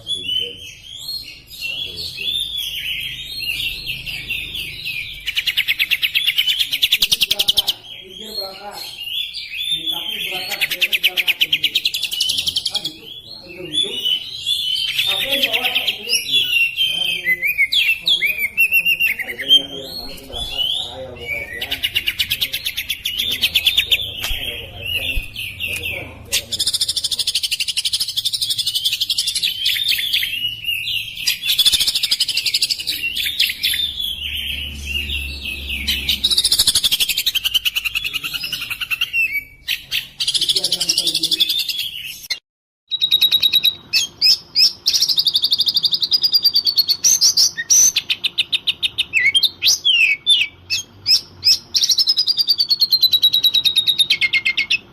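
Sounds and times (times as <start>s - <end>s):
songbird chirps and trills: 0.0s - 54.9s.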